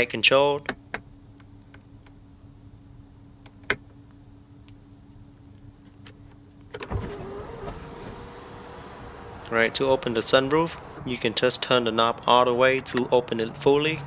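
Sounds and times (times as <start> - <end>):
sunroof motor whirring: 6.8 - 11.1.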